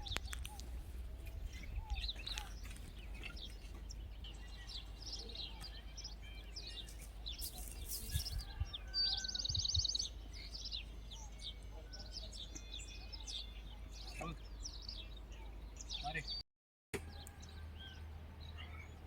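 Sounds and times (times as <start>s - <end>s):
small birds chirping: 0.0s - 16.4s.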